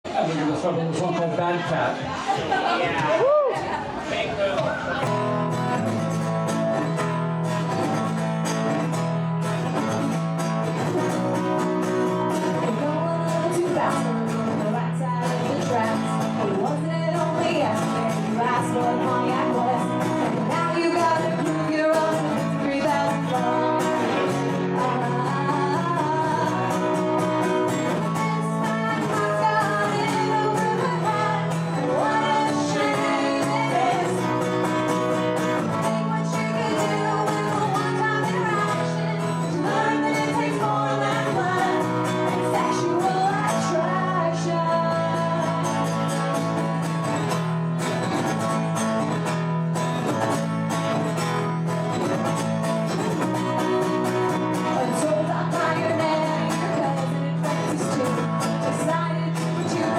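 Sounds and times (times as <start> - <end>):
live rock band playing: 4.9 - 59.9
person singing: 11.0 - 47.1, 54.6 - 59.9.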